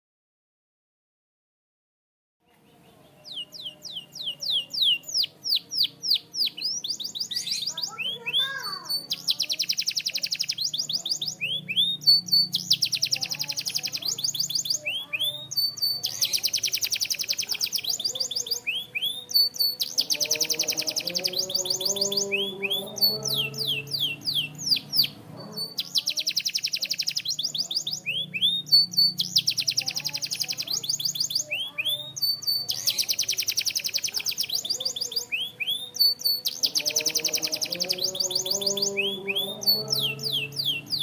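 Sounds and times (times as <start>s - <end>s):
canary singing trills: 2.4s - 41.0s.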